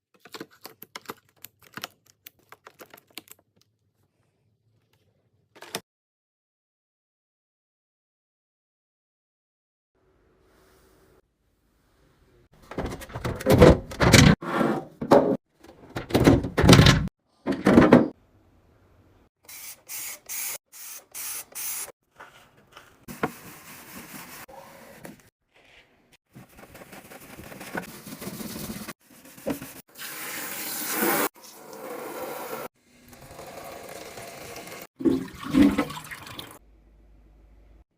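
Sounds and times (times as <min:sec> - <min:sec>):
short hissing bursts: 0:19.5 - 0:21.9
running water splashing: 0:33.2 - 0:36.6.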